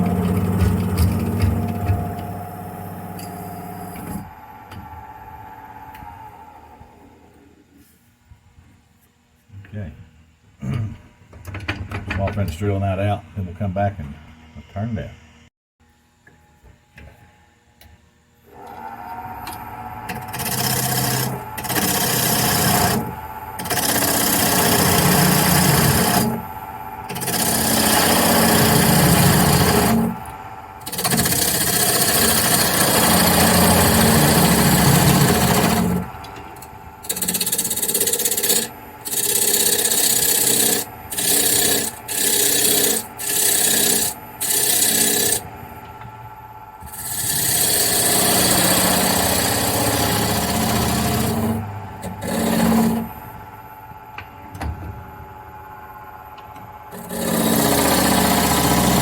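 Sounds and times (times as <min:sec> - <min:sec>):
drill bit boring into wood: 0:00.0 - 0:04.2, 0:20.1 - 0:45.5, 0:46.8 - 0:53.3, 0:56.9 - 0:59.0
wood lathe humming: 0:00.0 - 0:06.2, 0:18.5 - 0:53.6, 0:56.9 - 0:59.0.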